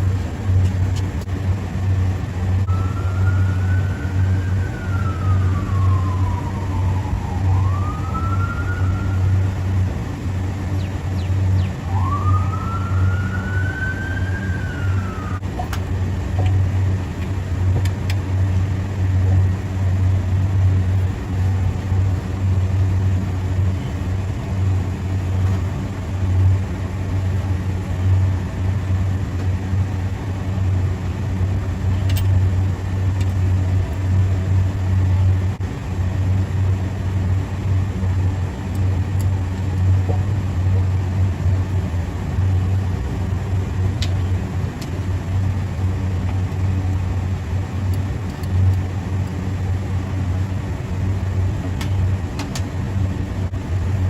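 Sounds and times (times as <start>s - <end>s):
low machine drone: 0.0s - 54.0s
siren wailing: 2.6s - 9.9s, 10.8s - 15.4s.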